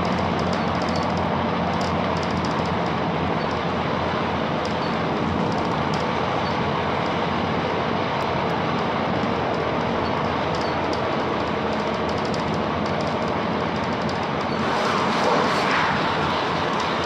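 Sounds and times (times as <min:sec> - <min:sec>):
train wheels rumbling on track: 0:00.0 - 0:17.0
low hum: 0:14.4 - 0:17.0.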